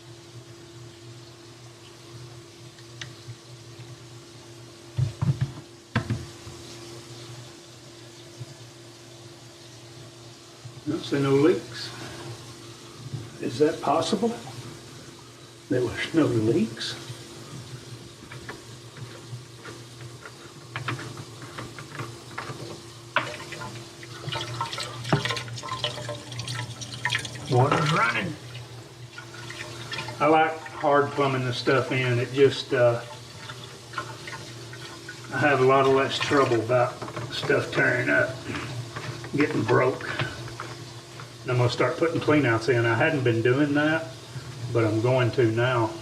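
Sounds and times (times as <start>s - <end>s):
steady low hum: 10.3s - 46.0s
water splashing into sink: 23.2s - 31.9s, 32.9s - 38.7s.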